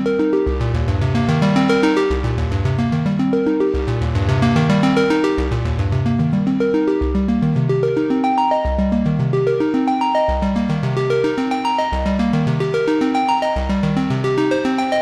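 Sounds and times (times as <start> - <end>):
synthesizer arpeggio: 0.0 - 15.0
low bass line: 0.5 - 7.9.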